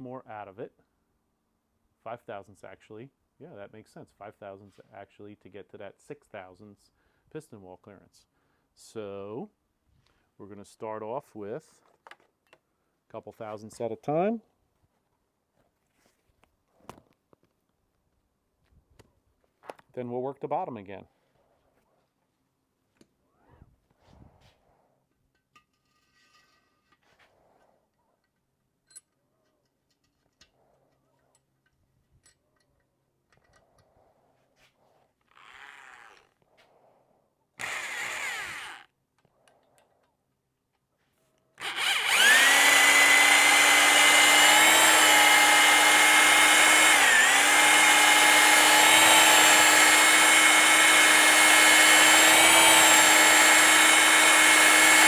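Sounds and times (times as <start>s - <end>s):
electric drill running: 37.6s - 38.9s, 41.6s - 55.0s.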